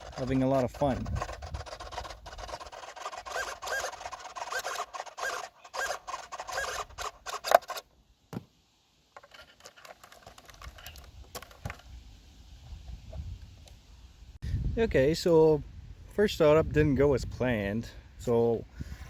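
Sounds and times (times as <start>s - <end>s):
servo whining: 0.0s - 7.9s.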